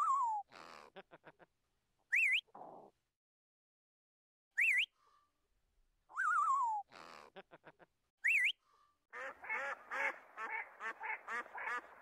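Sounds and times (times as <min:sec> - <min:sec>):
waterfowl honking: 0:09.2 - 0:12.0.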